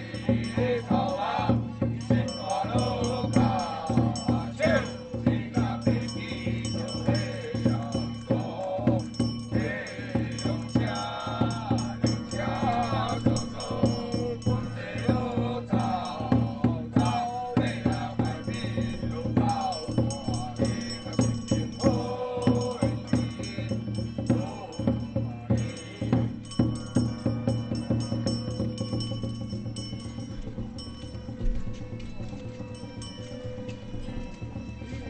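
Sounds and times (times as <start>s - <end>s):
voices chanting: 0.0s - 31.4s
struck percussion with jingling: 0.0s - 35.0s.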